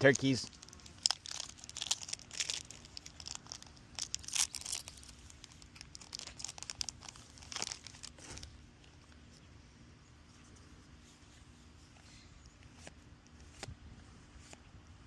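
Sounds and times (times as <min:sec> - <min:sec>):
foil pack crinkling: 0:00.0 - 0:09.2
foil tearing: 0:00.2 - 0:08.5.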